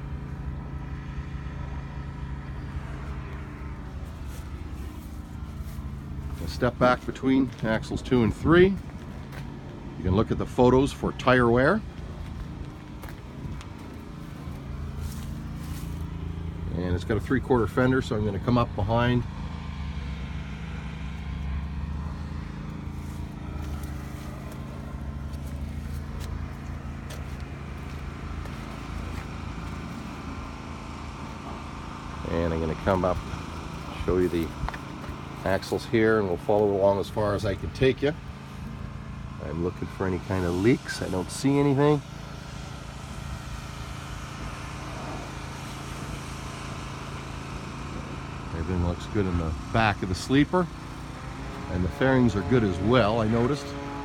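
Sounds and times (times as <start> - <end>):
low mechanical hum: 0.0 - 54.0
outdoor background noise: 0.0 - 54.0.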